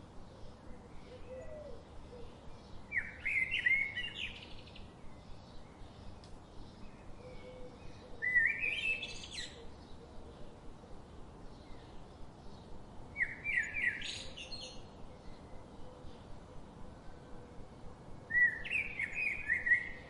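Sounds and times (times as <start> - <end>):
songbird singing rising notes: 0.1 - 10.8, 11.4 - 20.0.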